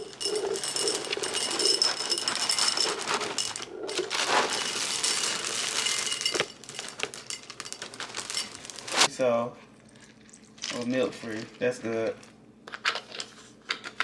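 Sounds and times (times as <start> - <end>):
bag crinkling: 0.0 - 9.1
cereal rattling into a bowl: 0.0 - 9.1.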